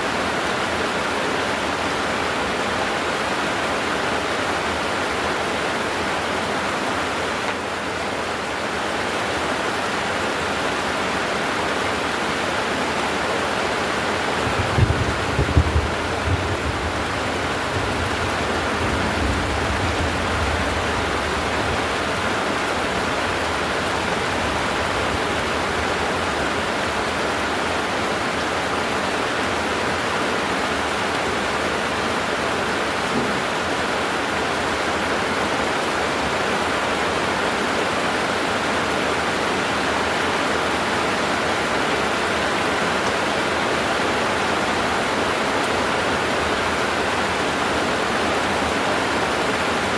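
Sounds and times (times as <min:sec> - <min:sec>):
heavy rain pouring: 0:00.0 - 0:49.9.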